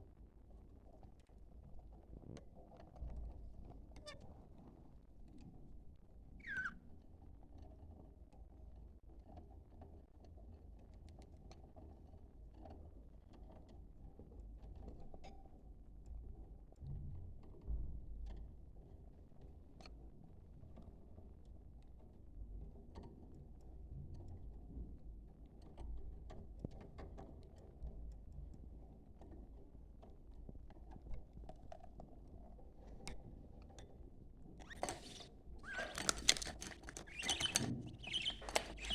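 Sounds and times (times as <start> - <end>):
budgerigar chatter: 35.1 - 38.9
budgerigar chirps: 37.1 - 38.9.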